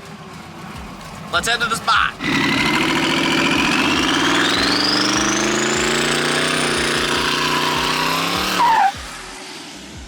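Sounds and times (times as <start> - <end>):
choppy engine accelerating: 0.0 - 10.0
turbo whine rising: 2.2 - 10.0.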